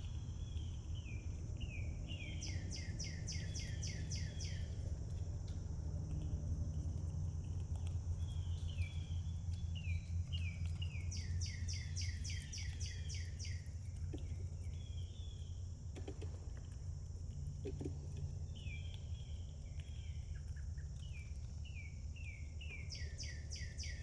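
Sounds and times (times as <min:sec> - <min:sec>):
songbird trilling: 0:00.5 - 0:04.7, 0:09.8 - 0:13.6, 0:21.8 - 0:24.0.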